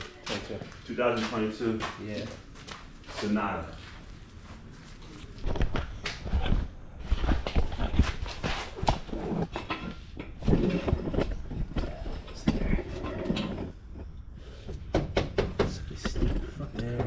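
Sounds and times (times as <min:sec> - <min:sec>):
knocking and clattering: 0:07.4 - 0:17.0.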